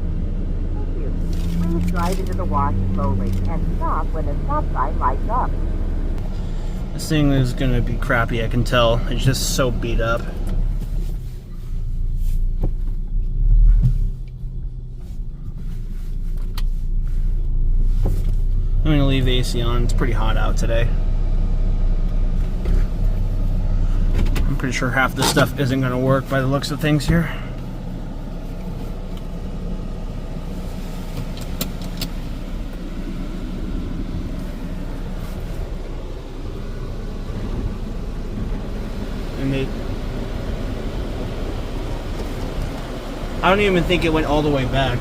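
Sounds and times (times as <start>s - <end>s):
car engine running inside cabin: 0.0s - 45.0s
automatic car wash running: 27.2s - 45.0s.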